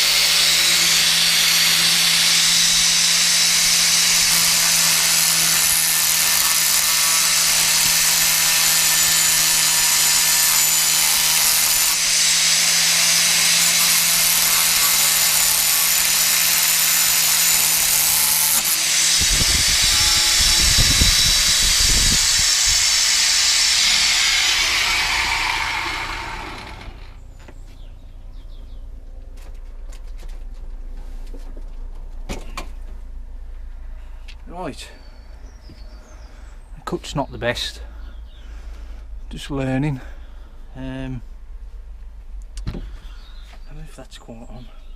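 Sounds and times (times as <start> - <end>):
angle grinder cutting metal pipe: 0.0 - 27.2.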